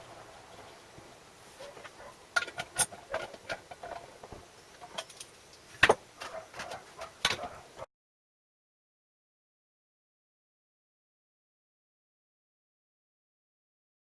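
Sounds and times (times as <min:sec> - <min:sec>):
metal parts and tools clinking: 0:01.8 - 0:07.6.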